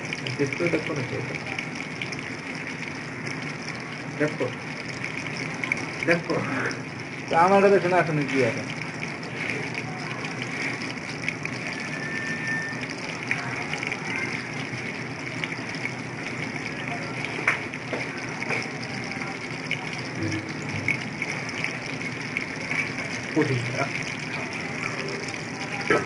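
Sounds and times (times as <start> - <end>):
food deep-frying in oil: 0.0 - 26.0
oil popping and crackling: 0.0 - 26.0.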